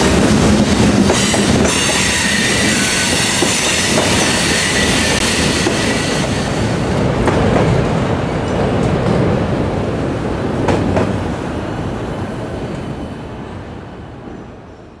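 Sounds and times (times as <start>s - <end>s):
freight train clattering over rails: 0.0s - 11.5s.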